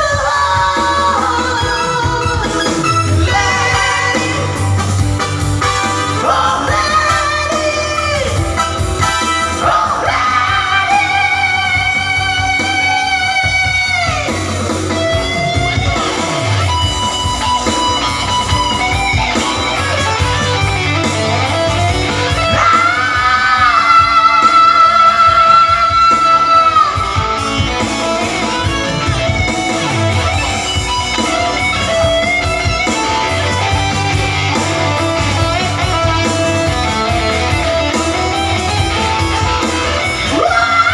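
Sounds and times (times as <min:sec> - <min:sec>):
person singing: 0:00.0 - 0:04.9, 0:06.0 - 0:08.5, 0:09.4 - 0:14.5, 0:22.1 - 0:29.5, 0:38.9 - 0:40.9
guitar accompaniment: 0:00.0 - 0:40.9.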